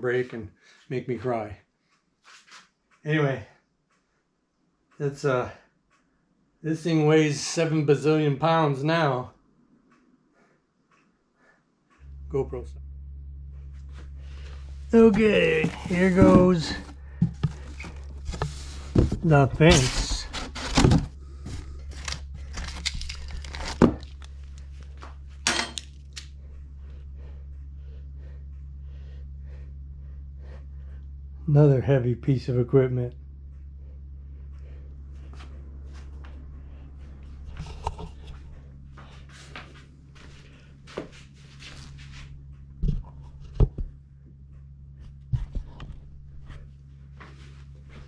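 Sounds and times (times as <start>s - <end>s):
steady low hum: 2.9s - 48.0s
packaging rustling: 15.0s - 24.9s
heavy knocks of metal parts: 25.4s - 25.8s.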